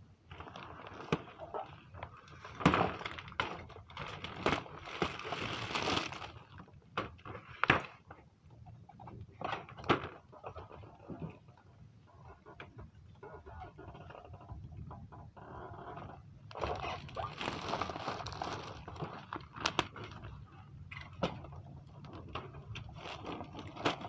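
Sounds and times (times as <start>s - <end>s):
packaging rustling and crinkling: 2.3s - 8.0s, 16.5s - 20.4s, 21.9s - 24.0s.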